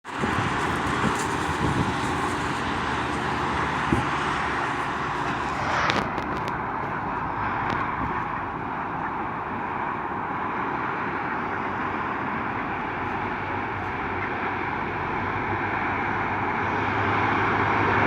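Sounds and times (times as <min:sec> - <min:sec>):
train passing: 0:00.1 - 0:18.0
scattered knocks: 0:00.2 - 0:10.1.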